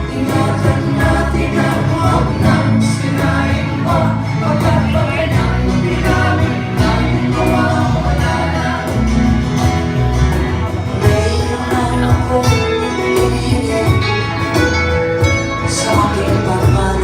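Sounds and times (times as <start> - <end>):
guitars and bass guitar: 0.0 - 17.0
voices singing folk song: 0.0 - 17.0.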